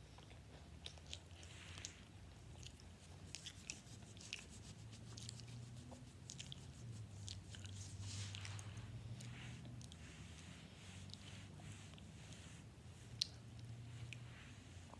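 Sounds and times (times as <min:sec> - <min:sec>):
person chewing with mouth open: 0:00.0 - 0:10.0, 0:13.0 - 0:14.2.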